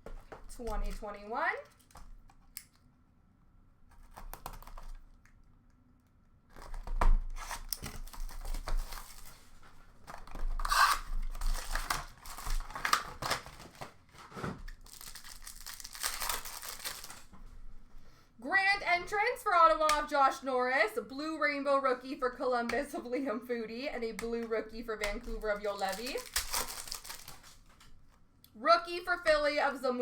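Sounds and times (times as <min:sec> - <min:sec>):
foil wrappers ripping and crinkling: 0:06.5 - 0:17.4, 0:25.0 - 0:28.0.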